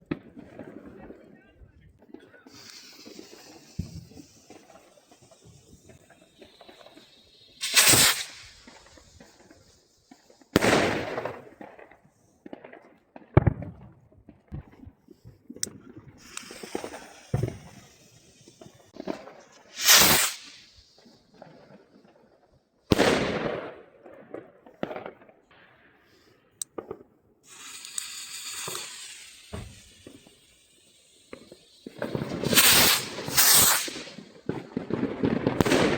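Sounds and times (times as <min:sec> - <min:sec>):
hissing firework launches: 0:02.3 - 0:12.3, 0:15.1 - 0:22.0, 0:22.9 - 0:23.6, 0:26.0 - 0:35.9
loud firework bangs with echo: 0:07.6 - 0:09.2, 0:10.6 - 0:11.7, 0:22.9 - 0:23.8, 0:31.3 - 0:35.9.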